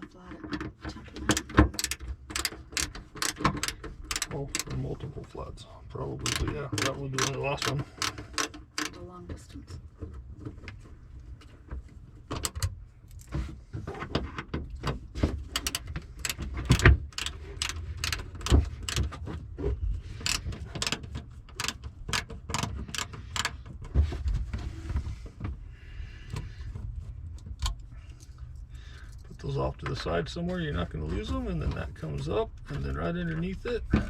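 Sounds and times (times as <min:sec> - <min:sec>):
metallic clicks of hand tools: 0:01.2 - 0:04.8, 0:06.2 - 0:09.0, 0:15.5 - 0:19.2, 0:20.2 - 0:23.6.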